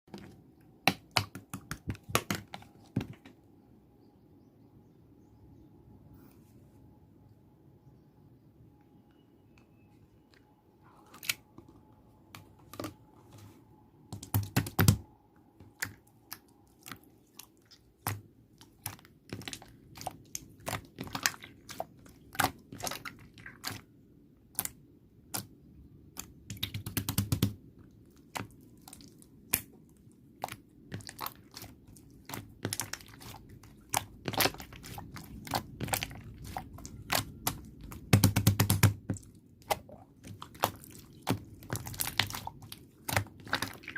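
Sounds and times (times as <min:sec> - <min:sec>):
slime crackling bursts: 0:30.4 - 0:43.9.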